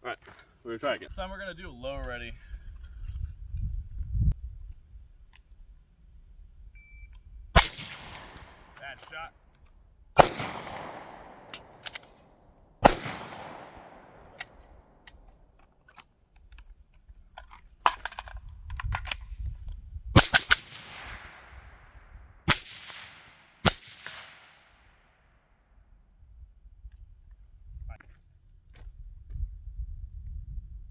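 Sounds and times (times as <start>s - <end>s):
gunshots echoing: 7.6s - 9.1s, 10.2s - 12.2s, 12.8s - 15.0s, 20.2s - 21.7s, 22.5s - 24.6s.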